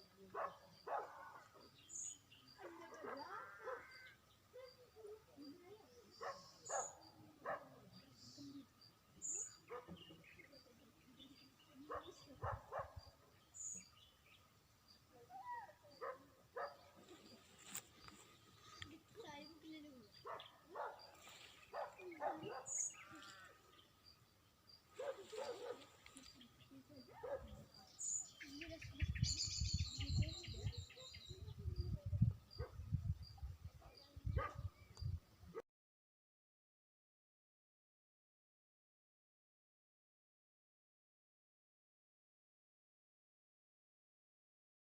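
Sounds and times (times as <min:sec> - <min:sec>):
birds chirping: 0:00.0 - 0:35.6.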